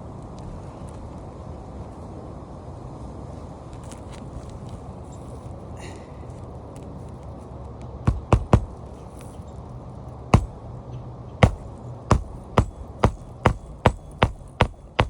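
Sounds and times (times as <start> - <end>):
low steady rumble: 0.0 - 15.0
hammer nailing roof shingle: 8.1 - 8.9, 10.4 - 10.6, 11.4 - 15.0.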